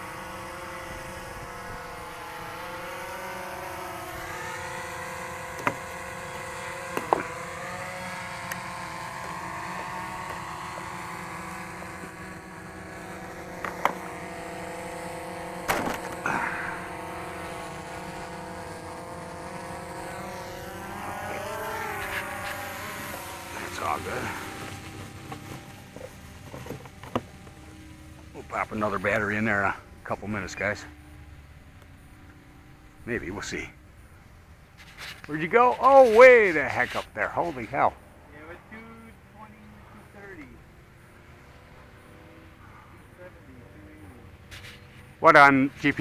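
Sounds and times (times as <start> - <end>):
drone propellers buzzing: 0.0 - 46.0.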